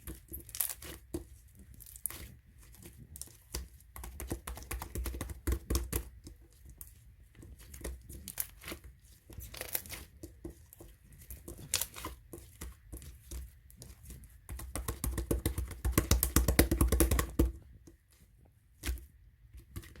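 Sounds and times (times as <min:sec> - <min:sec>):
crinkling and tearing crackles: 0:07.6 - 0:10.2.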